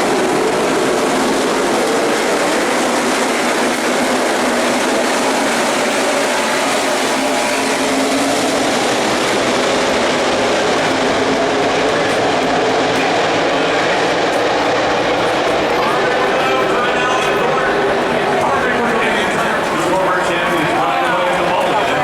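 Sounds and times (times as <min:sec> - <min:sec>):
race car engines passing: 0:00.0 - 0:22.0.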